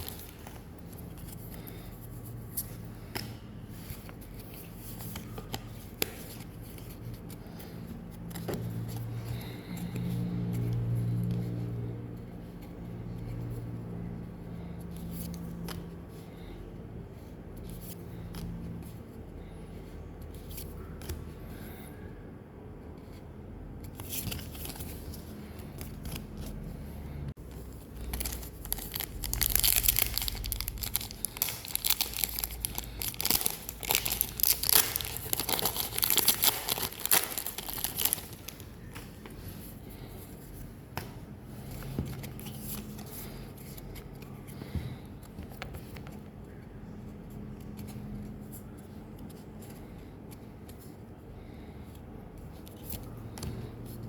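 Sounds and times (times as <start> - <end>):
card packaging tearing and crinkling: 27.9 - 38.7.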